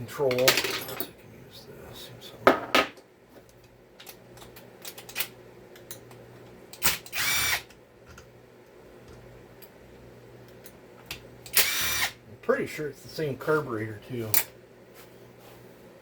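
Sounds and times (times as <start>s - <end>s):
power drill spinning: 6.8s - 7.7s, 11.5s - 12.2s.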